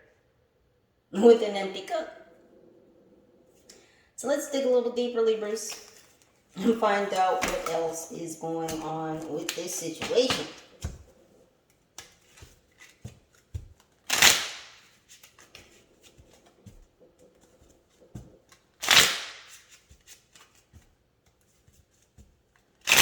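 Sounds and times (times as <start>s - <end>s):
cards shuffling: 5.7s - 23.0s
cards clicking: 12.0s - 21.4s.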